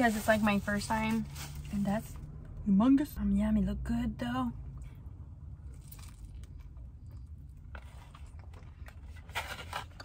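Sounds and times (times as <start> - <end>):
low steady hum: 0.0 - 10.0
person chewing: 5.7 - 7.4.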